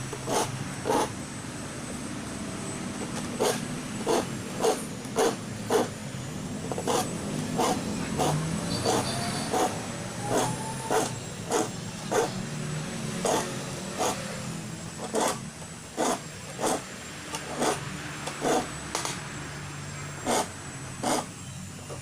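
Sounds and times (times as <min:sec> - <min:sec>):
metal file rasping on saw teeth: 0:00.2 - 0:01.2, 0:03.4 - 0:05.9, 0:06.7 - 0:12.4, 0:13.2 - 0:14.2, 0:15.0 - 0:18.8, 0:20.2 - 0:22.0.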